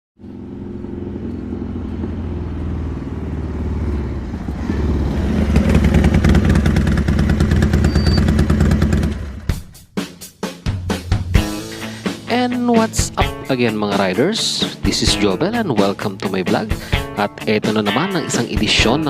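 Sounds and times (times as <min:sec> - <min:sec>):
motorcycle engine revving: 0:00.2 - 0:09.7.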